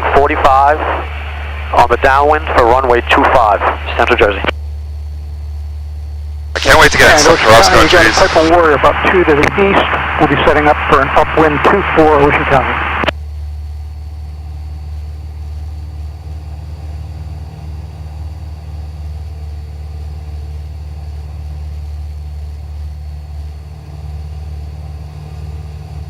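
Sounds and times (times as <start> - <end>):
propeller plane engine droning: 0.0 - 26.0.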